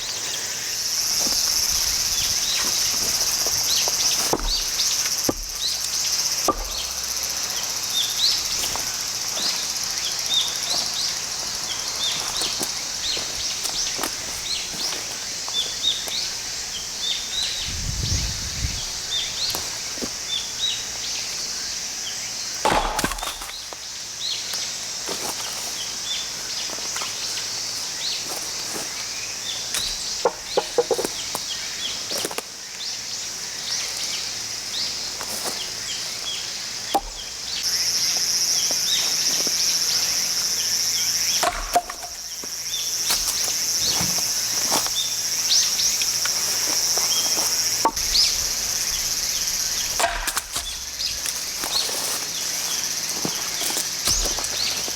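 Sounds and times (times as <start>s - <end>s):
sharp wooden knocks: 4.2s - 5.8s, 6.4s - 7.0s, 29.8s - 31.2s, 36.9s - 37.4s, 41.4s - 42.2s, 49.9s - 51.2s.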